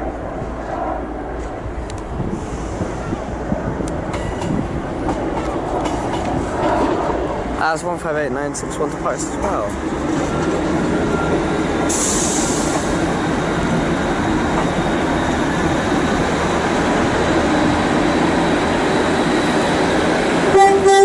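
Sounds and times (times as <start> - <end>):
diesel train engines running: 0.0 - 21.0
air hiss: 11.9 - 13.0.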